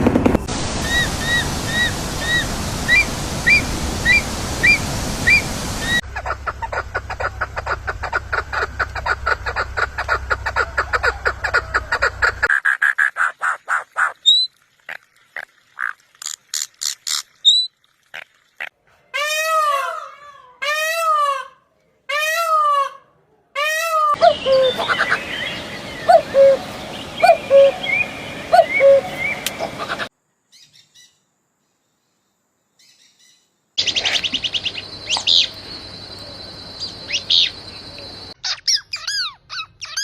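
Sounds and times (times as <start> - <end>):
rising and falling bird calls: 0.4 - 12.5, 19.4 - 31.1, 33.8 - 40.0
steady background noise: 24.2 - 30.3.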